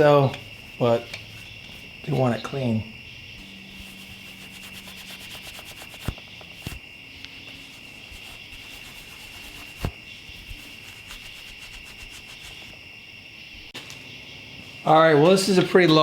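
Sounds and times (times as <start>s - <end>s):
steel wool rubbing: 0.0s - 2.7s, 3.4s - 12.9s.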